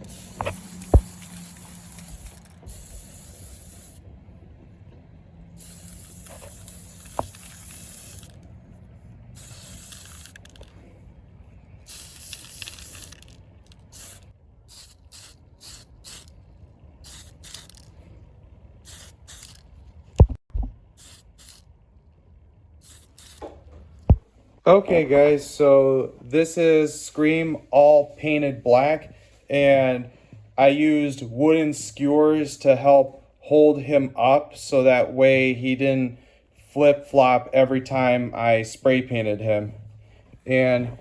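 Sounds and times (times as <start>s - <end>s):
spray paint can hissing: 0.0s - 4.0s, 5.5s - 8.5s, 9.4s - 10.8s, 11.8s - 16.4s, 17.0s - 18.0s, 18.8s - 19.7s, 20.9s - 21.6s, 22.8s - 23.5s.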